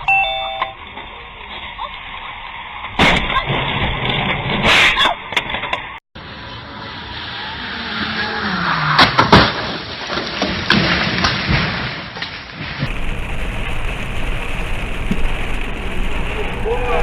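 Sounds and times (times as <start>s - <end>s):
car engine and road noise: 5.6s - 10.1s
car collision crash: 8.8s - 12.0s.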